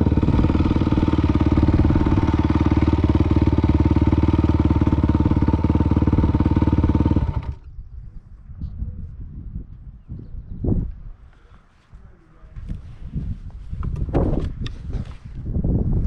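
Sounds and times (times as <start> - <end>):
dirt bike engine idling: 0.0 - 7.8
faint low rumbling: 0.0 - 15.1.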